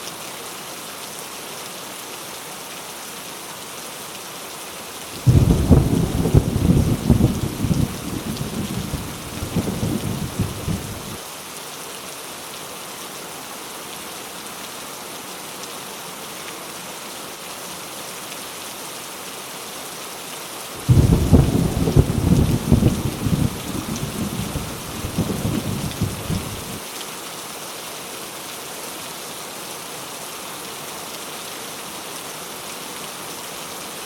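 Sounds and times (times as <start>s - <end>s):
heavy rain falling: 0.0s - 34.0s
thunder rumbling: 5.2s - 11.2s, 20.8s - 26.8s.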